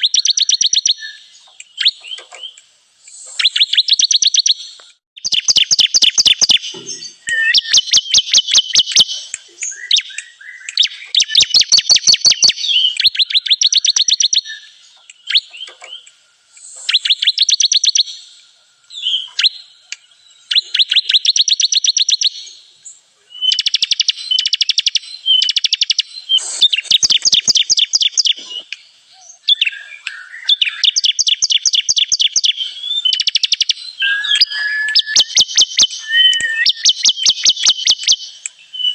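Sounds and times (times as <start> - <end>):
bird singing chattering notes: 0.0 - 22.6, 23.4 - 38.9.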